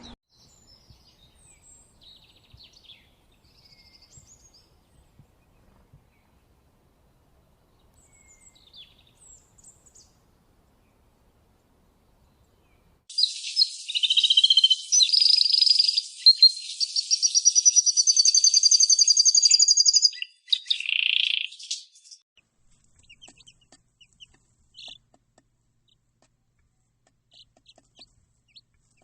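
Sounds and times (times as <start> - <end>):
faint bird chirps: 0.0 - 6.4, 12.2 - 22.2, 23.0 - 25.0
songbird warbling trills: 13.1 - 22.2.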